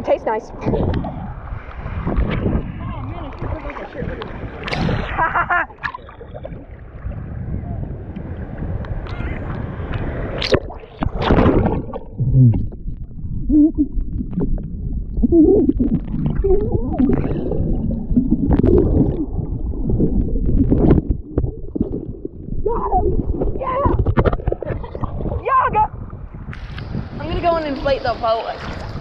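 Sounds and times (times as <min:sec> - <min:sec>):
sea water churning and gurgling: 0:00.0 - 0:29.0
sharp water splashes: 0:02.1 - 0:07.2, 0:09.1 - 0:12.8.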